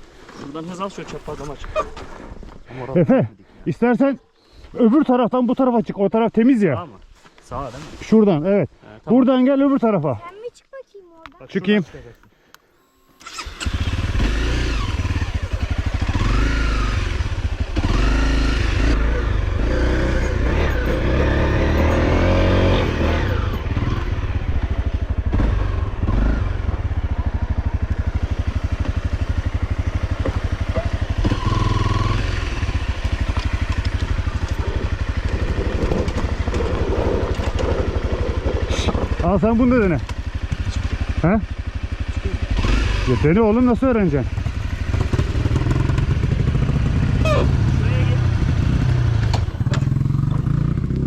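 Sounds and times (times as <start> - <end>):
off-road motorcycle engine revving: 13.2 - 51.0.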